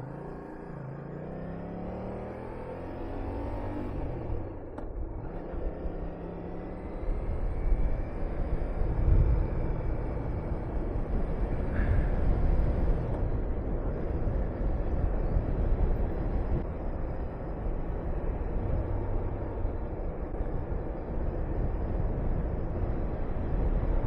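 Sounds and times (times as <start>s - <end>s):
wind rushing on microphone: 7.0s - 24.0s.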